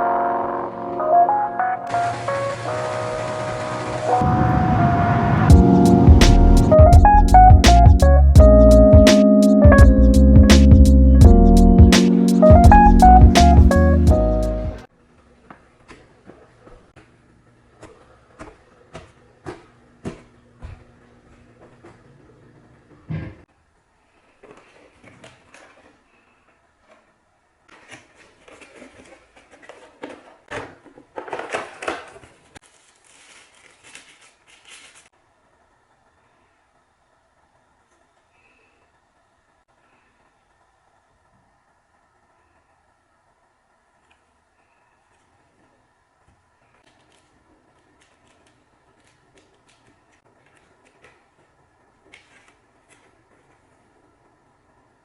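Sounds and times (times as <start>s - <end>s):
crinkling and clicking handling: 26.8s - 35.1s, 46.6s - 53.9s.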